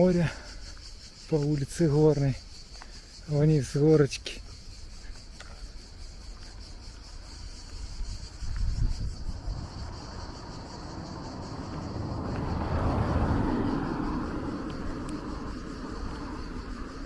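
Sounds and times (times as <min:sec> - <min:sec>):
insect chirring: 0:00.0 - 0:17.0
motor vehicle passing by: 0:09.2 - 0:17.0.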